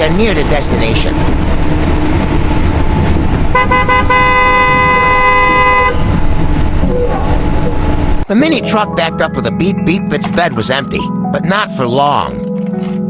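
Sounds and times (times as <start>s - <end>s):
low engine rumble: 0.0s - 8.3s
vehicle horn tooting: 3.4s - 6.2s.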